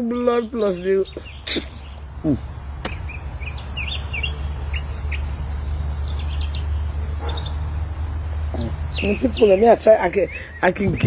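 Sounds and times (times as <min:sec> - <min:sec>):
birds chirping: 0:00.0 - 0:11.0
sharp click: 0:02.8 - 0:03.0.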